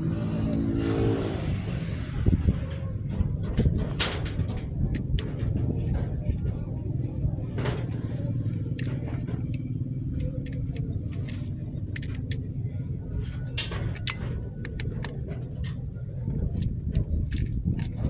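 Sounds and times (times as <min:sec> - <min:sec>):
vehicle engine running: 0:00.0 - 0:18.0
metallic clinks and taps: 0:13.5 - 0:15.8.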